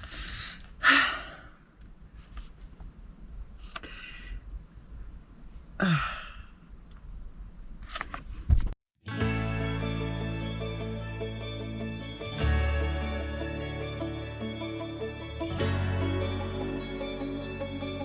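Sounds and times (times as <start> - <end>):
breathy exhalations: 0.0 - 1.6, 3.7 - 4.5, 5.8 - 6.6.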